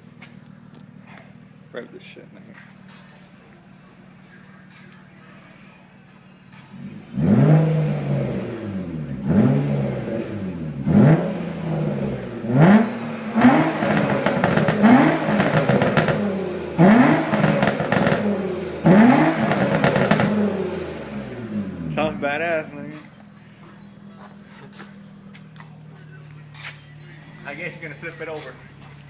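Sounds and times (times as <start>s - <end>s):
car engine revving: 6.5s - 29.0s.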